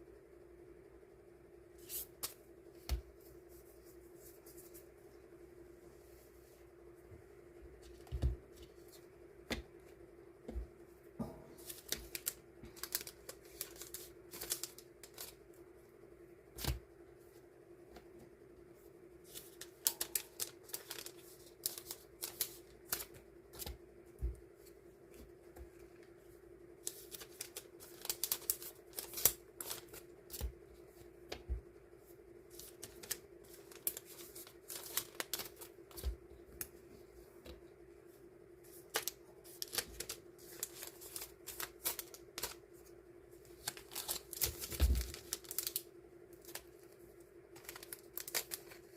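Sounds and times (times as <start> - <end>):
steady low hum: 0.0 - 48.9
paper and plastic rustling: 19.2 - 23.8, 32.5 - 36.2, 38.7 - 42.9, 43.5 - 45.8, 46.4 - 48.9.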